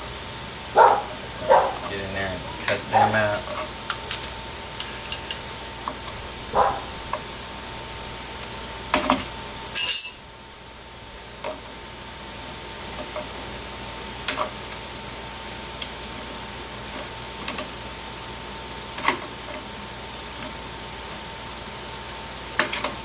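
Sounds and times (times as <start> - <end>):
high-pitched metal clink: 9.8 - 10.3.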